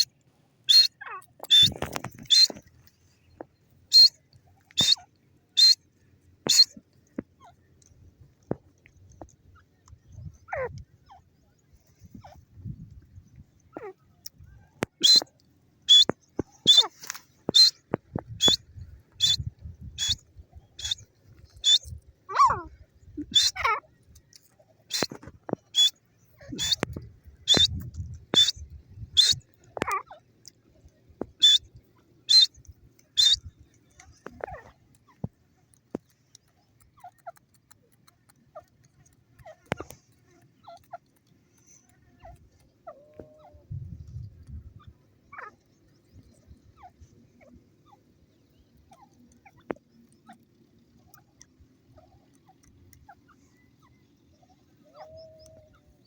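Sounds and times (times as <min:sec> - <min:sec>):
francolin calling: 0:00.0 - 0:02.7, 0:03.9 - 0:05.8, 0:06.4 - 0:06.8, 0:14.8 - 0:30.3, 0:31.3 - 0:35.2
harsh falling bird calls: 0:00.7 - 0:02.7, 0:04.8 - 0:05.8, 0:06.5 - 0:06.8, 0:24.9 - 0:26.8, 0:27.4 - 0:27.8.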